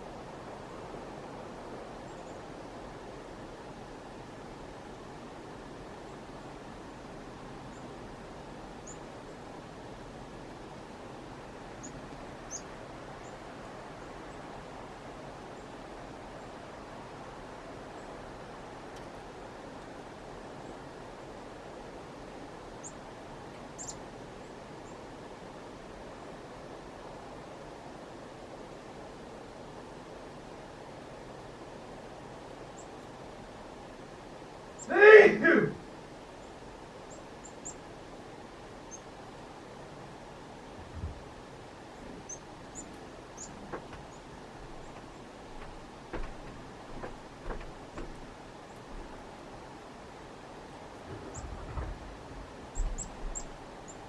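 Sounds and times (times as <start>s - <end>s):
outdoor background hiss: 0.0s - 54.0s
chickadees chirping: 11.8s - 13.4s, 23.8s - 24.0s, 42.0s - 45.2s, 52.7s - 54.0s.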